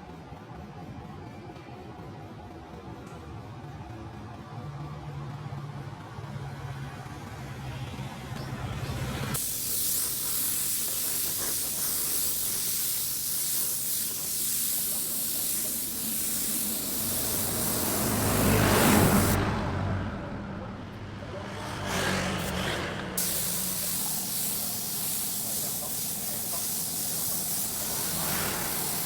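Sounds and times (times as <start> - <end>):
paint sprayer hissing: 9.4 - 19.4, 23.2 - 29.0.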